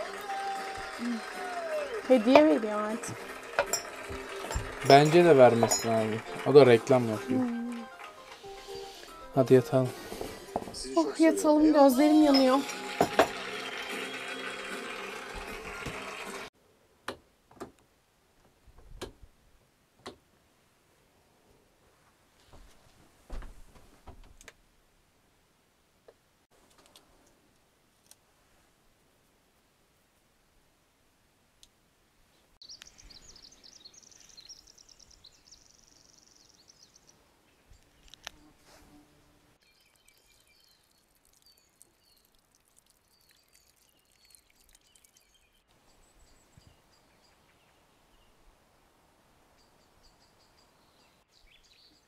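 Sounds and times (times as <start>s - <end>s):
busy loud noise: 0.0s - 5.5s
songbird chirping and trilling: 32.6s - 38.6s, 39.6s - 48.5s, 49.5s - 52.0s.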